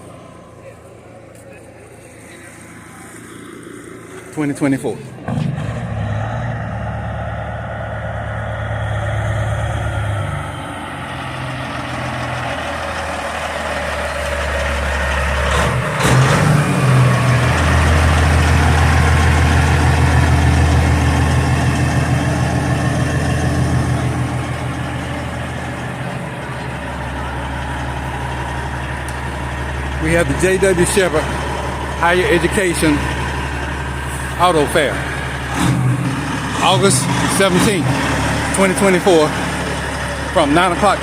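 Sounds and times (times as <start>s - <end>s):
vehicle engine humming: 0.0s - 41.0s.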